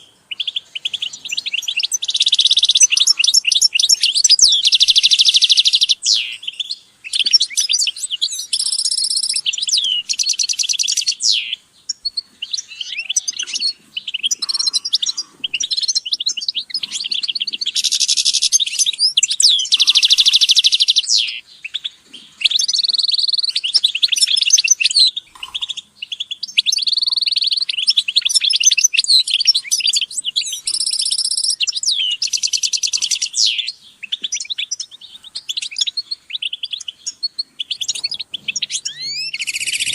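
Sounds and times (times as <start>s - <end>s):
finches twittering: 0.0s - 21.4s, 22.3s - 39.9s
buzzy bird trills: 22.2s - 39.9s.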